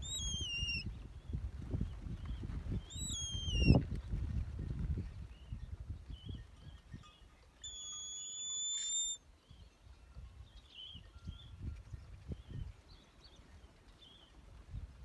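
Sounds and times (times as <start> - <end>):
bird chirps: 0.0 - 0.9, 2.8 - 3.8, 6.2 - 14.4
high bird whistle: 0.0 - 0.9, 2.8 - 3.8, 7.6 - 9.2.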